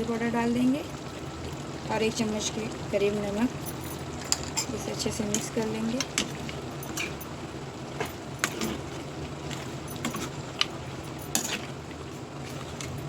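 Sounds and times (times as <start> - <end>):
spoon scraping a pan: 6.0 - 7.3, 8.0 - 11.8.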